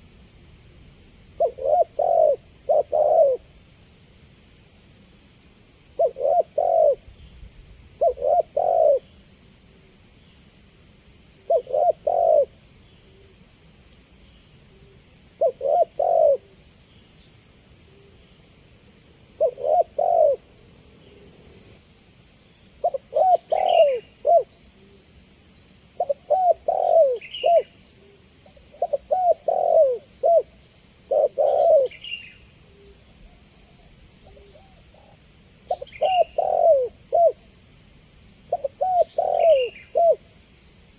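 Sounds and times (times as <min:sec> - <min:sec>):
dove cooing: 0:01.4 - 0:03.5, 0:06.0 - 0:07.1, 0:08.0 - 0:09.1, 0:11.5 - 0:12.6, 0:15.4 - 0:16.6, 0:19.3 - 0:20.5, 0:22.8 - 0:24.5, 0:26.0 - 0:27.8, 0:28.5 - 0:33.0, 0:34.2 - 0:37.4, 0:38.5 - 0:40.3.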